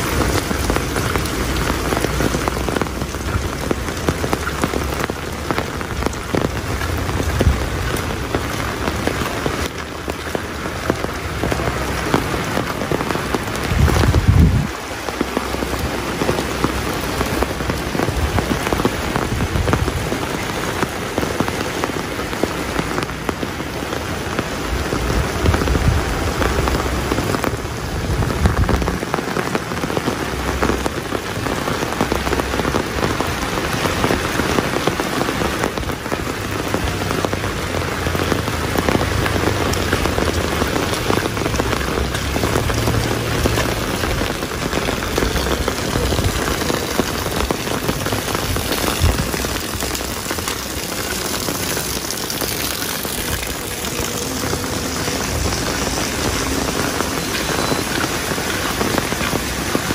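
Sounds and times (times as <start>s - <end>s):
low rumbles: 0.0s - 20.2s, 35.8s - 59.9s
rain pattering: 0.0s - 59.9s.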